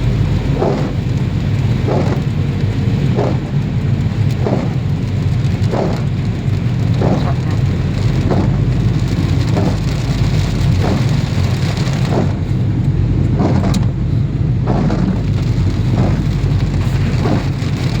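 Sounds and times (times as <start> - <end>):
heavy rain: 0.0 - 18.0
vehicle noise rumble: 0.0 - 18.0
repeating swish: 0.5 - 1.0.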